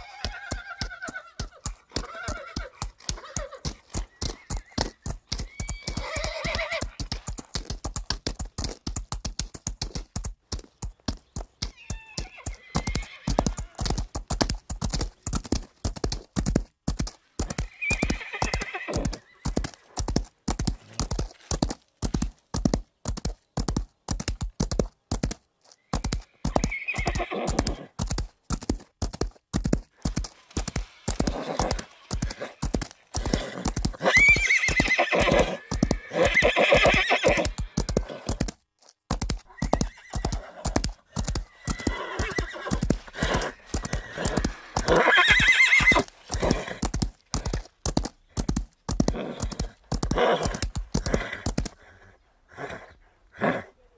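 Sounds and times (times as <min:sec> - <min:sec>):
horse whinnying: 0:00.0 - 0:07.0, 0:11.7 - 0:13.9, 0:17.6 - 0:19.7, 0:26.0 - 0:27.9, 0:30.4 - 0:38.4, 0:39.5 - 0:46.9, 0:49.0 - 0:51.6
horse hooves clip-clopping: 0:00.0 - 0:51.8.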